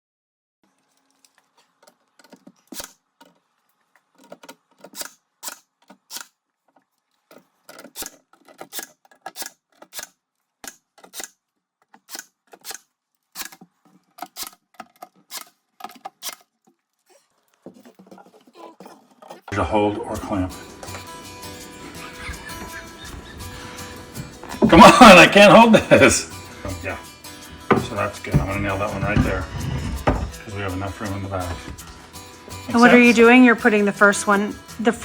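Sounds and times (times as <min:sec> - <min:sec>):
wooden boards clicking and knocking: 0:04.1 - 0:06.3, 0:27.6 - 0:30.4.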